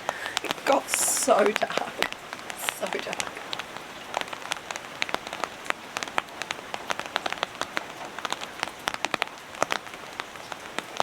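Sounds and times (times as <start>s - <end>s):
heavy rain hiss: 0.0s - 11.0s
large raindrops tapping: 0.0s - 11.0s.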